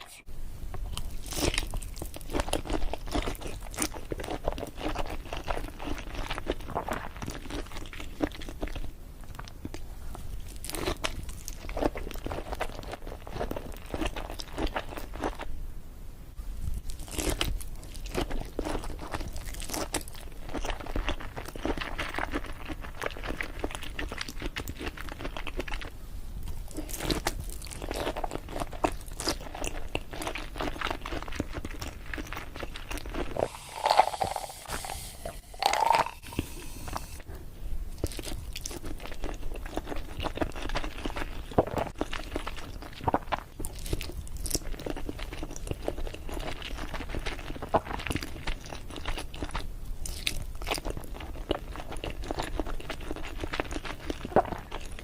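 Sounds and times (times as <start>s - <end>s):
chewing and biting: 0.8s - 15.5s, 16.8s - 35.0s, 38.0s - 55.0s
loud mouth sounds: 33.4s - 37.2s.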